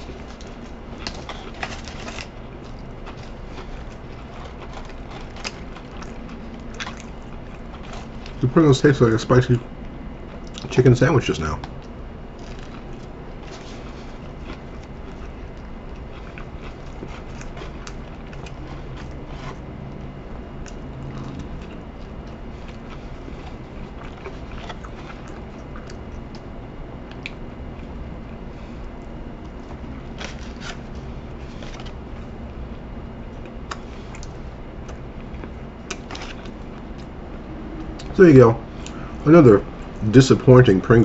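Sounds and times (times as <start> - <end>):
person chewing crunchy food: 0.0 - 8.4, 10.2 - 10.8, 11.6 - 40.0
low room hum: 0.0 - 41.0.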